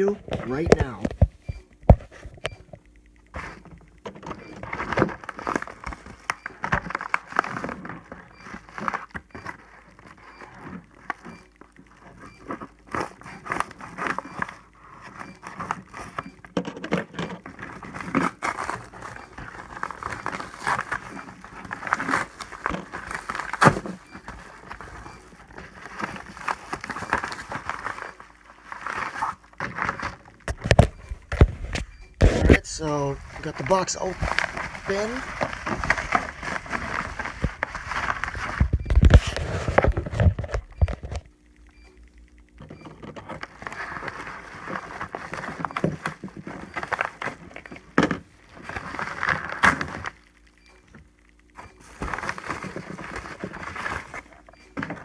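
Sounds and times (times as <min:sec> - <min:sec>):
cardboard rustling and crinkling: 0:17.3 - 0:41.2, 0:43.3 - 0:50.2, 0:51.8 - 0:55.0.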